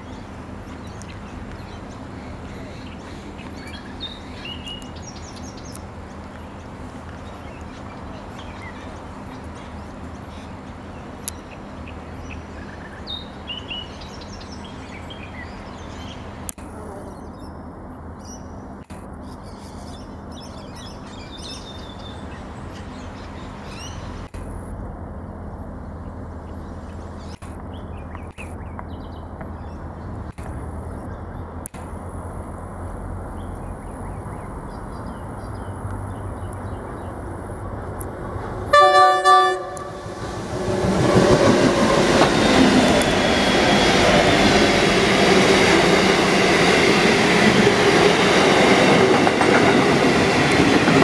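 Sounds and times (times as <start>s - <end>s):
small birds chirping: 0.0s - 24.4s, 25.2s - 31.7s, 33.3s - 38.5s.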